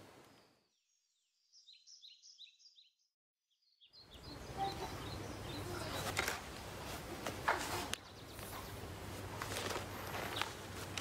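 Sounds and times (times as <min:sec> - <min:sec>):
small bird chirping: 0:00.3 - 0:06.2
outdoor background noise with hum: 0:04.1 - 0:11.0.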